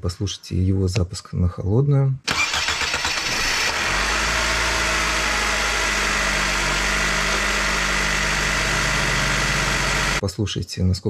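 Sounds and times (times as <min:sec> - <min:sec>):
car engine starting and idling: 0:02.3 - 0:10.2.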